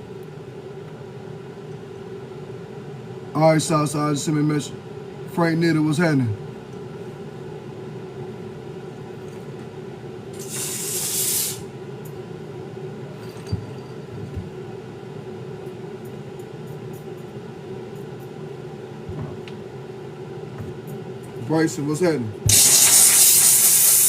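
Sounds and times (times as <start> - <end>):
steady low hum: 0.0 - 24.0
hiss: 10.4 - 11.7, 22.5 - 24.0
soft knocks: 19.1 - 19.5.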